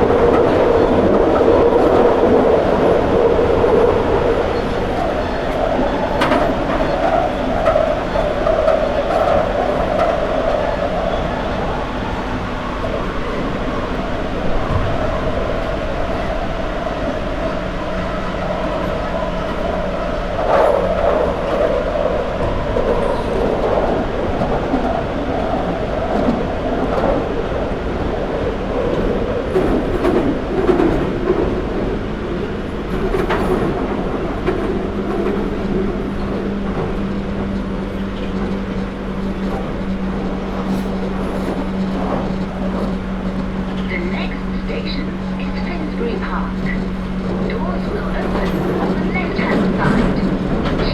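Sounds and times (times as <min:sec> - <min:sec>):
train wheels rumbling on rail: 0:00.0 - 0:50.9
traction motor hum: 0:31.9 - 0:50.9.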